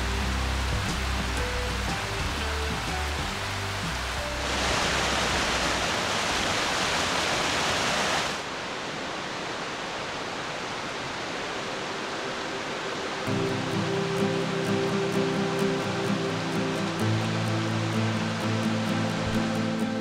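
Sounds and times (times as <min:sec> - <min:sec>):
music: 0:00.0 - 0:06.0, 0:13.3 - 0:20.0
stream rushing over rocks: 0:00.0 - 0:20.0.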